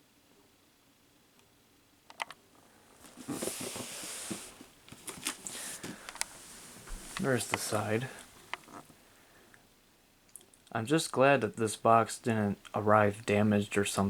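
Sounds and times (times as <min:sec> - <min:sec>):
plastic bag rustling: 0:02.9 - 0:08.8.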